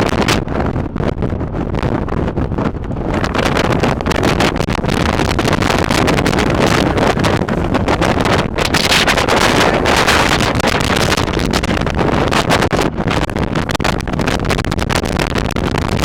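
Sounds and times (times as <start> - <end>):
wind buffeting microphone: 0.0 - 16.0
boat engine running: 2.5 - 16.0
rushing water: 3.1 - 14.3.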